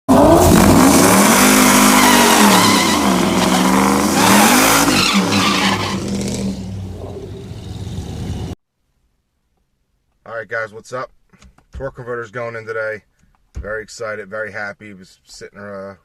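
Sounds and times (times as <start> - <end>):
car engine revving hard: 0.1 - 8.6
tyres squealing: 1.4 - 6.6.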